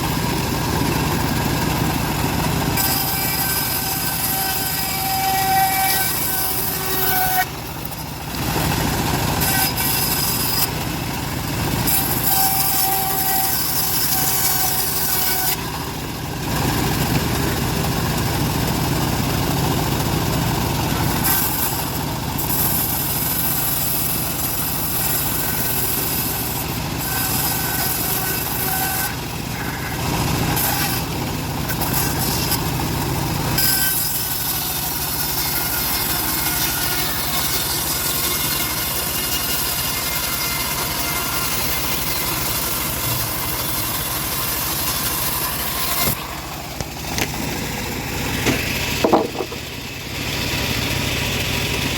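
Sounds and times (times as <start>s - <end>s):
bandsaw mill running: 0.0s - 51.9s
saw blade hissing through wood: 2.8s - 7.6s, 30.6s - 51.4s.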